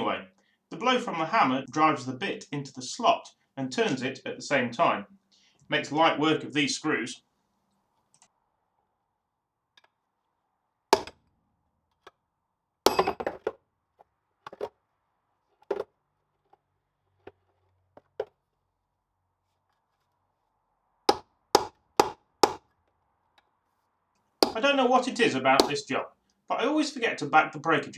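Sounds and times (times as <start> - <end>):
hammer striking steel drum: 24.4 - 24.6.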